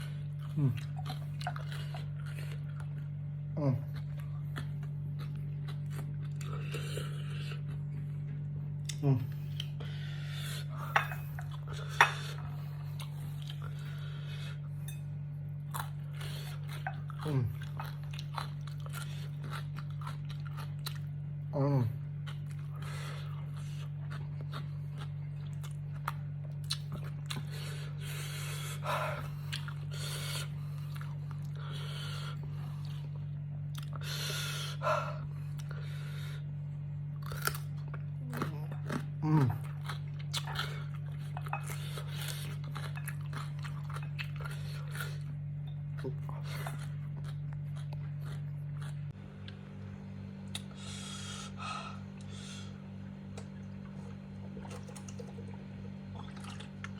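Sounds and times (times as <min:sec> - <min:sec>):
steady low hum: 0:00.0 - 0:56.9
person humming mm: 0:00.5 - 0:01.0, 0:03.5 - 0:04.0, 0:08.9 - 0:09.5, 0:17.2 - 0:17.6, 0:21.5 - 0:22.0, 0:38.2 - 0:39.7
person biting and chewing: 0:37.2 - 0:49.2.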